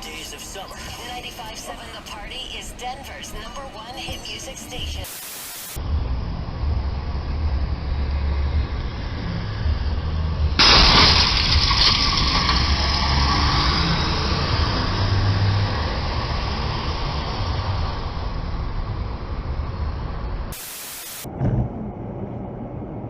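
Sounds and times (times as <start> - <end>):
burst of static: 5.0 - 5.8, 20.6 - 21.3
car engine and road rumble: 5.8 - 23.0.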